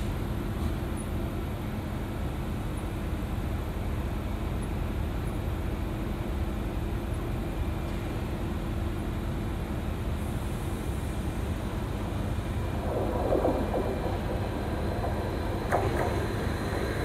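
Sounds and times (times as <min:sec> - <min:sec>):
faint electric train hum: 0:00.0 - 0:17.0
low rumble: 0:11.4 - 0:17.0.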